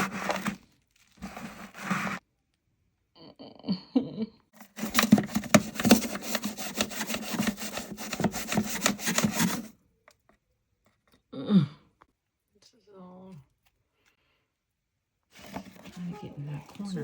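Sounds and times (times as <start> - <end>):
scrubbing and rubbing strokes: 0.0 - 0.6, 1.2 - 2.2, 4.6 - 9.7.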